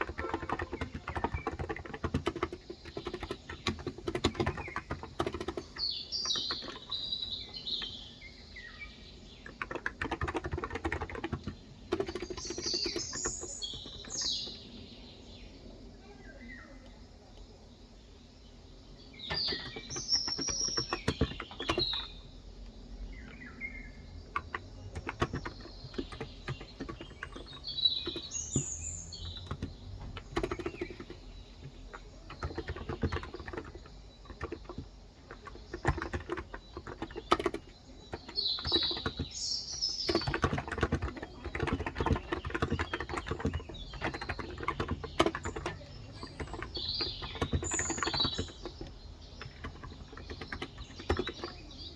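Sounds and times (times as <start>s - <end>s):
typing on keyboard: 0.0s - 8.2s, 9.3s - 14.7s, 19.2s - 22.3s, 24.2s - 51.9s
birds chirping: 0.0s - 51.9s.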